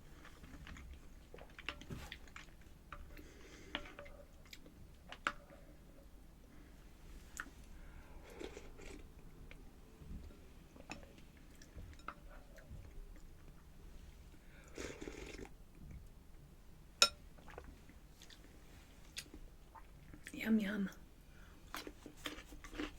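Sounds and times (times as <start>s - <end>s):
person chewing: 8.2s - 9.1s, 21.7s - 22.9s.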